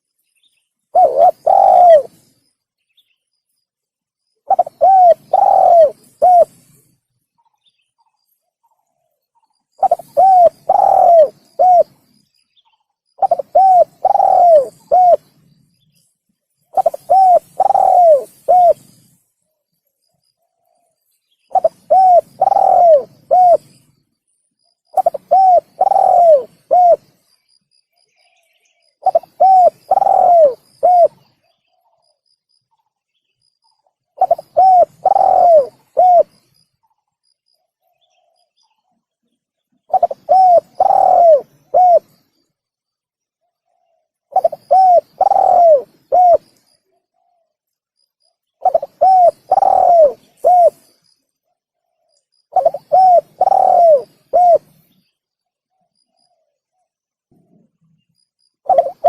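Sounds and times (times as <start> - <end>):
dove cooing: 0.9 - 2.2, 4.5 - 6.8, 9.8 - 12.1, 13.2 - 15.4, 16.7 - 19.1, 21.5 - 23.7, 24.9 - 27.1, 29.0 - 31.3, 34.2 - 36.4, 39.9 - 42.2, 43.7 - 46.6, 48.6 - 50.9, 52.5 - 54.9, 58.6 - 59.0.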